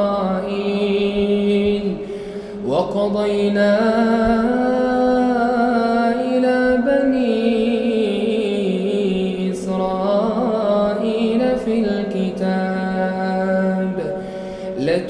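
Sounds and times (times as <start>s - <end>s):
man chanting recitation: 0.0s - 2.0s, 2.6s - 15.0s.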